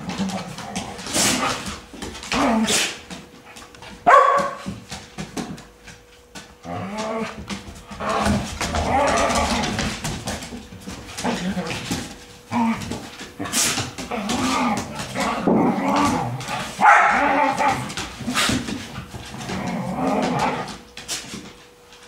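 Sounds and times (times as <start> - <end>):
dogs barking: 4.0 - 4.7, 16.6 - 17.9.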